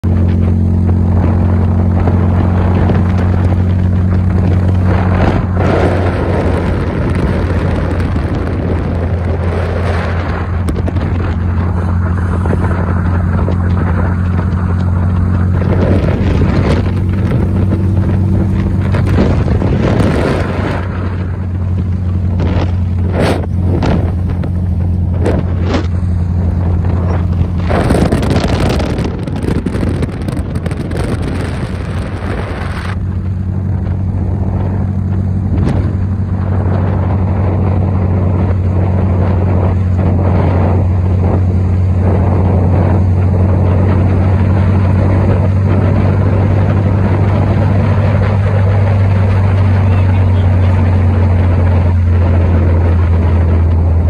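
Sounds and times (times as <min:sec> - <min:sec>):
car engine humming: 0:00.0 - 0:54.0
wind buffeting the microphone: 0:00.0 - 0:54.0.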